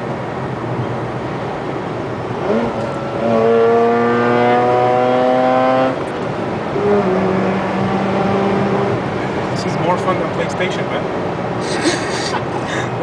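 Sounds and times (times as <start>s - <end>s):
car engine accelerating: 1.0s - 10.3s.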